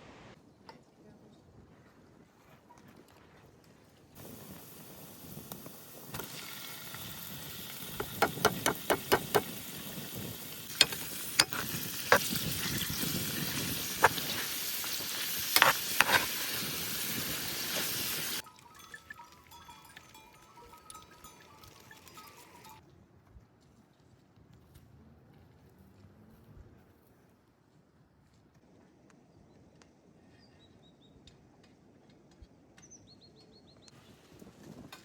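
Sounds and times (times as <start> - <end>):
food sizzling in a pan: 4.2 - 22.8
utensil knocking against pan: 8.0 - 9.5, 10.8 - 12.2.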